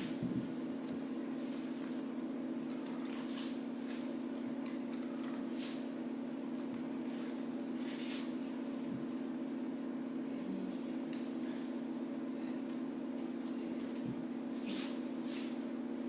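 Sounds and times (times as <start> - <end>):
steady low hum: 0.0 - 16.0
soft rustling hisses: 3.2 - 4.2, 5.4 - 5.9, 7.0 - 8.4, 13.6 - 15.6.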